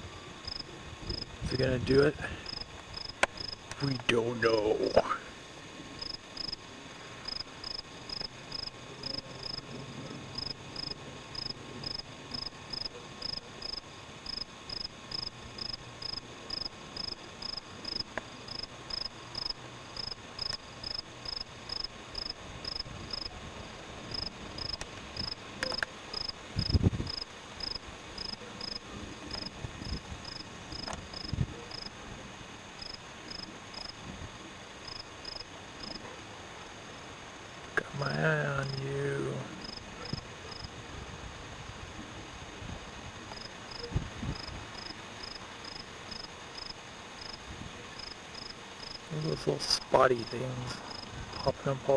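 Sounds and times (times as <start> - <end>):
cricket chirping: 0.1 - 5.2, 5.8 - 32.0, 32.6 - 34.0, 34.8 - 40.8, 43.3 - 51.9.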